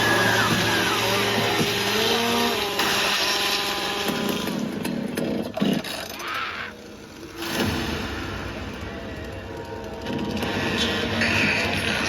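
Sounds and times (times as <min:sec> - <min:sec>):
chainsaw engine revving: 0:00.0 - 0:06.2.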